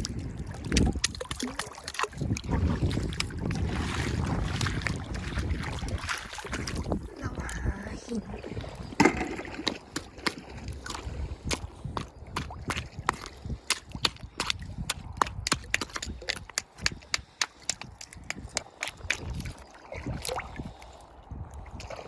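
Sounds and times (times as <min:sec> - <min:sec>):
oyster shells clacking: 0:08.8 - 0:19.7.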